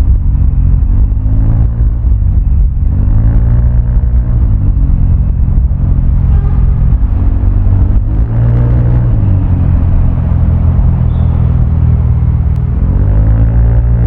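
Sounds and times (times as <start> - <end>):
scooter engine running loud: 4.0 - 13.0.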